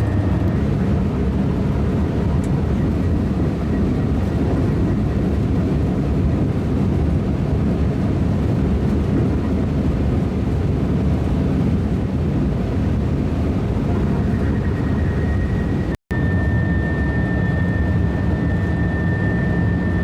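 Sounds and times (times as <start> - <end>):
high-speed train rumbling: 0.0 - 20.0
faint high whine: 13.9 - 20.0.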